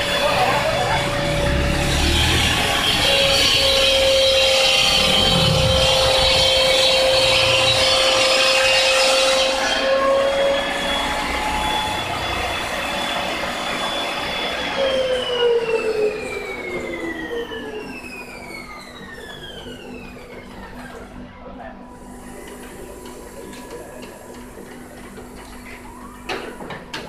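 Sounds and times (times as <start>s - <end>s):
blade motor whining: 0.0s - 20.4s.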